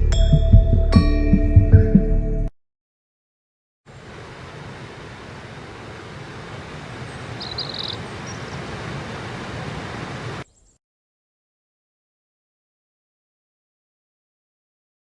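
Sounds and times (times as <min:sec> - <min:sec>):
steady rushing outdoor noise: 0:03.9 - 0:10.5.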